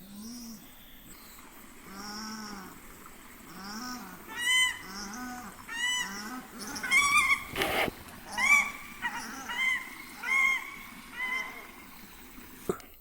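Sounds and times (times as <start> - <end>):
duck higher calls: 3.8 - 11.8.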